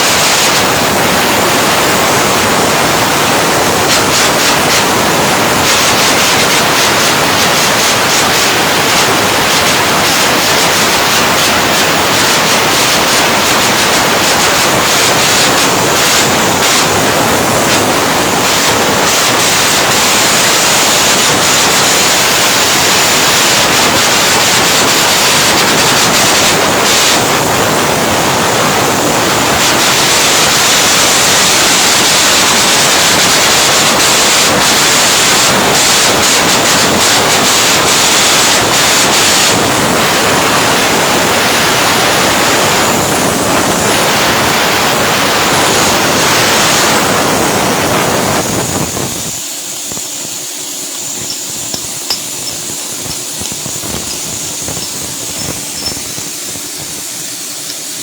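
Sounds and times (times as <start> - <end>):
welding arc crackling hiss: 0.0 - 58.0.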